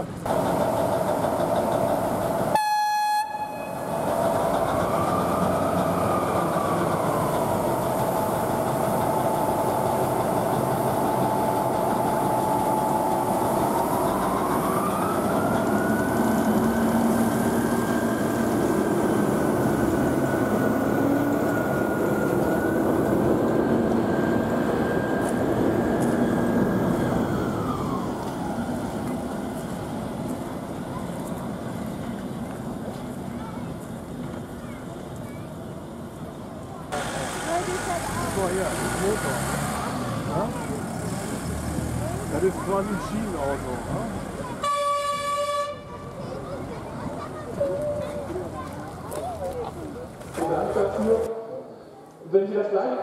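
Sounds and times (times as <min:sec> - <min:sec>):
rail vehicle rumble with whine: 0:00.0 - 0:52.0.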